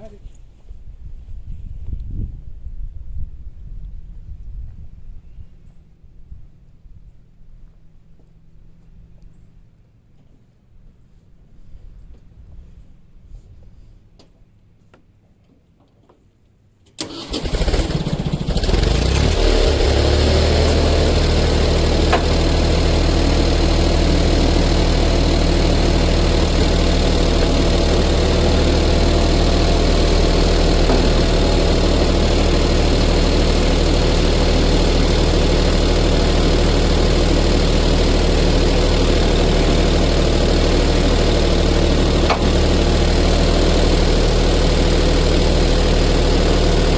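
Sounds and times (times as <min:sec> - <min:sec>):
tractor engine starting and idling: 0:16.9 - 0:46.9.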